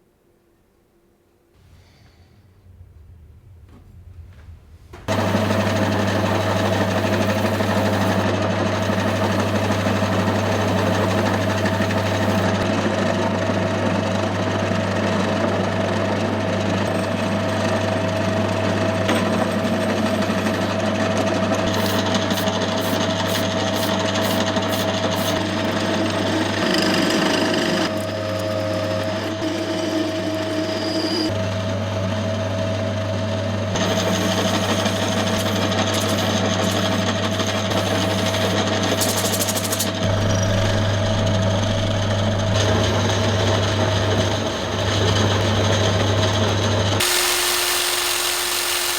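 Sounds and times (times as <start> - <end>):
electric power tool grinding: 5.1 - 12.6, 37.7 - 48.9.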